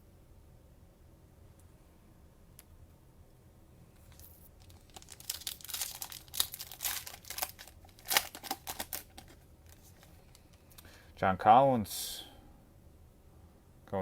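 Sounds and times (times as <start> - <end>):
cellophane crinkling and tearing: 4.0 - 10.8.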